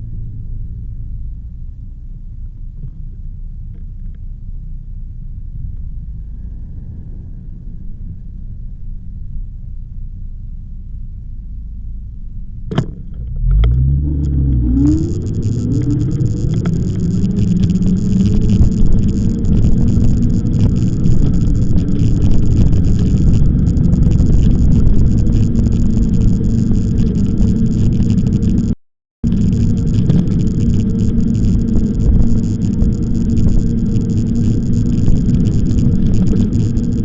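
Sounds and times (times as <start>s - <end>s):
road rumble: 0.0s - 37.0s
short rising whine: 13.2s - 37.0s
wind buffeting microphone: 13.8s - 37.0s.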